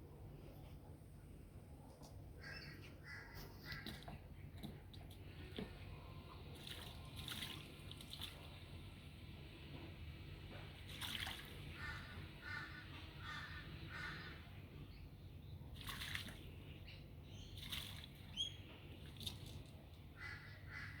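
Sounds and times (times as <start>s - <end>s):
bird wings splashing in water: 6.6s - 8.5s, 10.8s - 12.0s, 15.8s - 16.5s, 17.6s - 18.3s, 19.0s - 19.7s.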